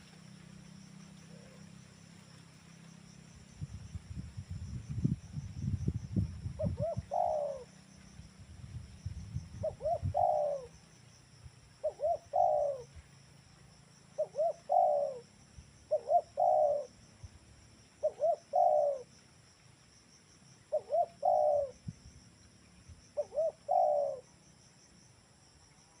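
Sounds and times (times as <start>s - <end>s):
crickets trilling: 0.0s - 26.0s
dove cooing: 6.6s - 7.7s, 9.6s - 10.8s, 11.8s - 12.9s, 14.2s - 15.2s, 15.9s - 17.0s, 18.0s - 19.1s, 20.7s - 21.8s, 23.2s - 24.3s.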